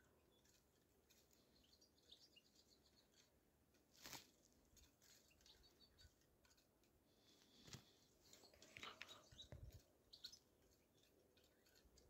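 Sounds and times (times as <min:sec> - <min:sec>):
faint high bird chirps: 0:00.0 - 0:03.3, 0:05.0 - 0:06.2, 0:08.2 - 0:12.0
brief rustle: 0:03.9 - 0:05.3.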